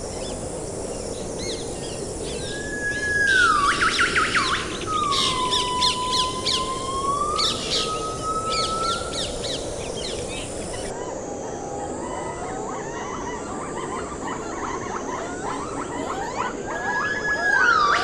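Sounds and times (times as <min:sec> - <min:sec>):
birds chirping: 0:12.9 - 0:18.0
bird whistling: 0:15.1 - 0:18.0.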